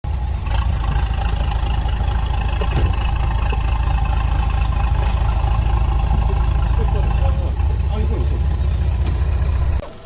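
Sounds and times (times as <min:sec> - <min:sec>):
boat engine idling: 0:00.0 - 0:10.0
high-pitched whine: 0:00.1 - 0:09.9.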